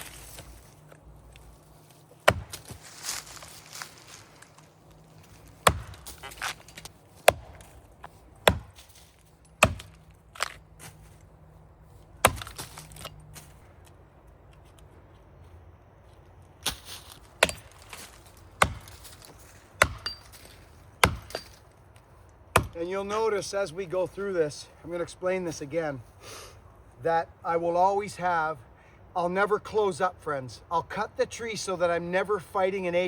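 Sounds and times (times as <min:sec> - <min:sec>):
axe chopping tree trunk: 0:02.2 - 0:02.9, 0:05.5 - 0:09.0, 0:09.6 - 0:10.6, 0:12.2 - 0:13.2, 0:16.6 - 0:21.6, 0:22.5 - 0:23.2.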